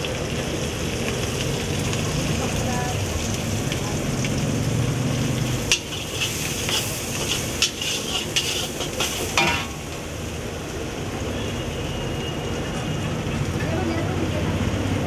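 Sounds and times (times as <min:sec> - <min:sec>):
onions sizzling in hot oil: 0:00.0 - 0:15.0
metal spatula scraping pan: 0:05.7 - 0:09.8.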